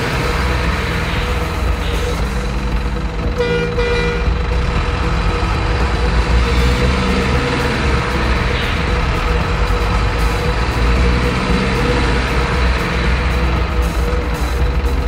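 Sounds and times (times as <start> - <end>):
truck engine rumbling: 0.0 - 15.0
truck horn toot: 3.2 - 4.7.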